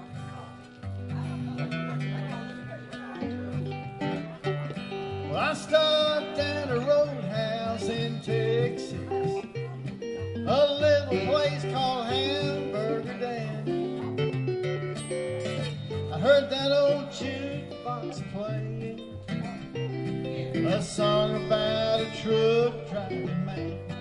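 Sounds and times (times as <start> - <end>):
country guitar instrumental: 0.0 - 24.0.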